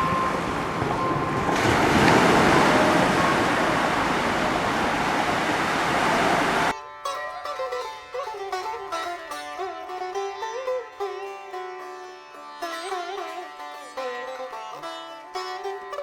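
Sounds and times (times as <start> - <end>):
sea surf on a beach: 0.0 - 6.7
plucked sitar music: 0.0 - 16.0.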